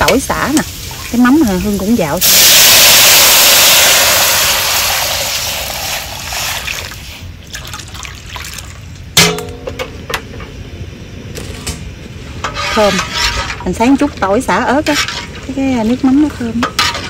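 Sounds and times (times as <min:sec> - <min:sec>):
food sizzling in a pan: 0:00.0 - 0:07.4.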